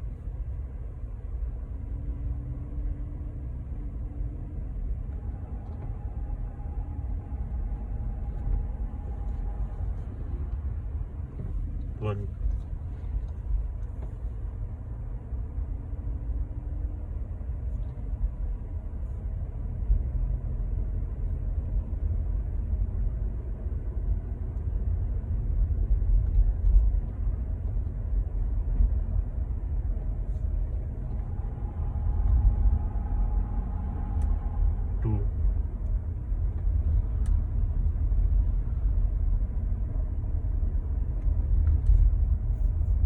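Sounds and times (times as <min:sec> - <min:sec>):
faint steady tone: 0:00.0 - 0:20.2, 0:28.2 - 0:43.0
air conditioning: 0:00.0 - 0:43.0
car cabin rumble: 0:00.0 - 0:43.0.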